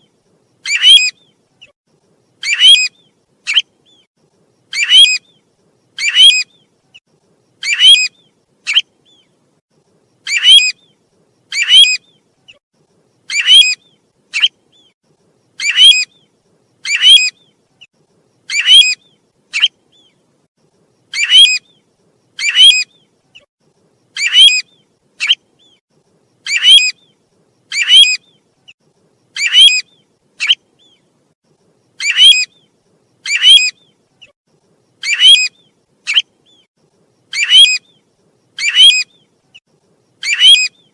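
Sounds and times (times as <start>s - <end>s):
short sharp high bird calls: 40.2s - 40.9s.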